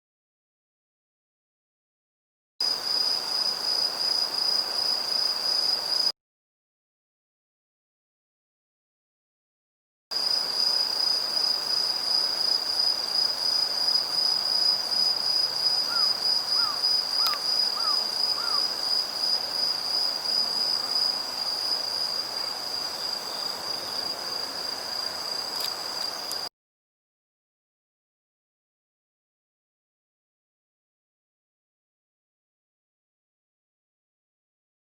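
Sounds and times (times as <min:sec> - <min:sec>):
crickets trilling: 0:02.6 - 0:06.1, 0:10.2 - 0:26.5
sharp click: 0:17.2 - 0:17.4.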